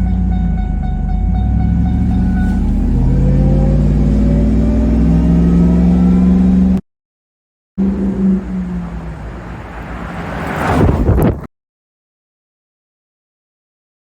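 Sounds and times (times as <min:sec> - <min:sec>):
truck engine accelerating: 0:00.0 - 0:06.8, 0:07.8 - 0:11.4.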